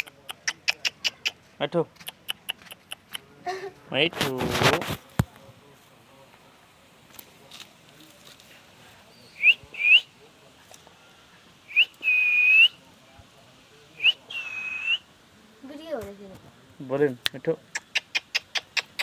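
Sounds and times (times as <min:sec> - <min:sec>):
rising whistles: 0:09.1 - 0:10.1, 0:11.7 - 0:12.8, 0:14.0 - 0:15.1.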